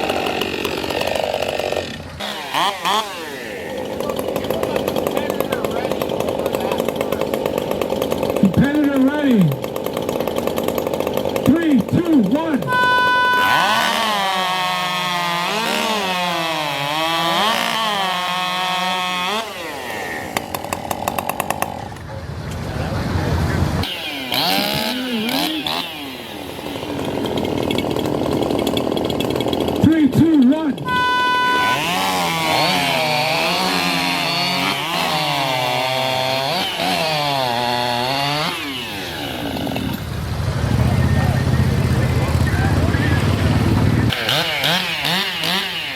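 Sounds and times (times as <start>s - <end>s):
chainsaw cutting log: 0.0s - 22.1s, 23.8s - 41.2s, 41.8s - 45.9s
short electronic beep: 12.7s - 13.7s, 30.9s - 31.8s.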